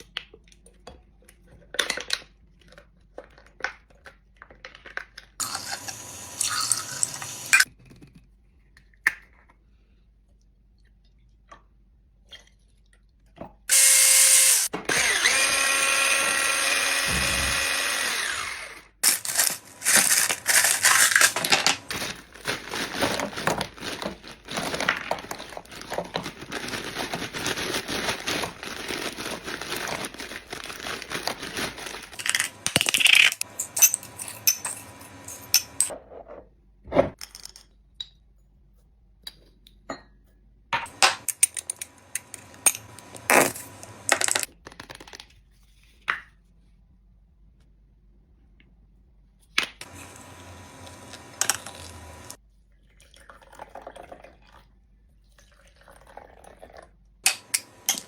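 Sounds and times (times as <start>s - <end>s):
dense crinkling and crunching: 19.0s - 35.9s, 49.8s - 52.4s
glassware and utensils clinking: 32.2s - 35.9s.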